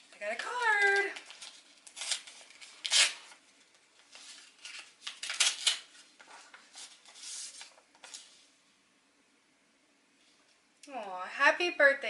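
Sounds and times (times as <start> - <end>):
paper rustling and tearing: 0.0 - 3.4, 4.0 - 8.4.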